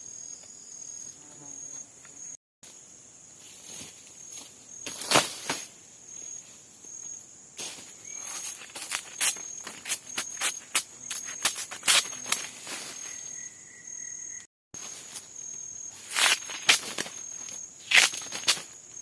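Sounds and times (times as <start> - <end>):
insects trilling: 0.0 - 19.0
rustles close by: 3.4 - 6.7, 7.6 - 13.4.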